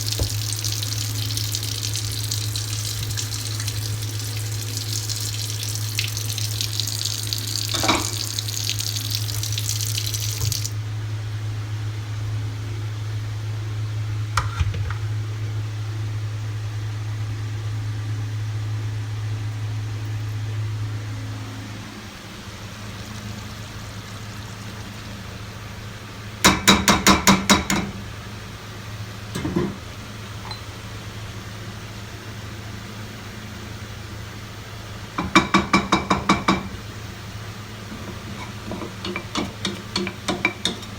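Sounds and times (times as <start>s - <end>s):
water running from tap: 0.0s - 10.8s, 22.3s - 28.1s, 34.6s - 40.9s.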